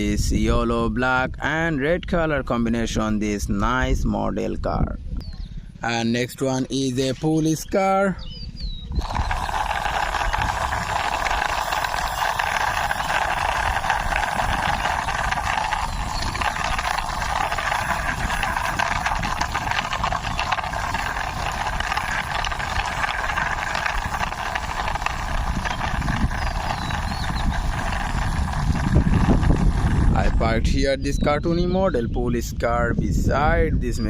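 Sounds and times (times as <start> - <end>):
plastic toy car rolling on ground: 8.7 - 31.3.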